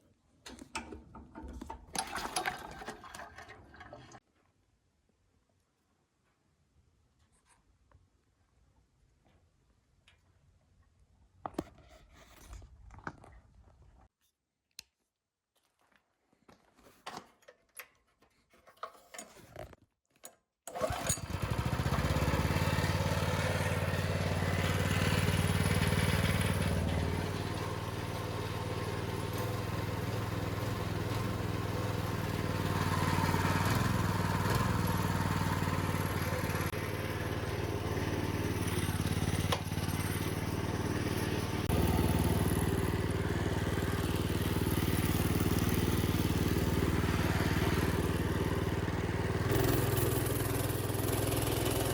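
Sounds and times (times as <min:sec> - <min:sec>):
small engine starting and running: 0:20.7 - 0:51.9.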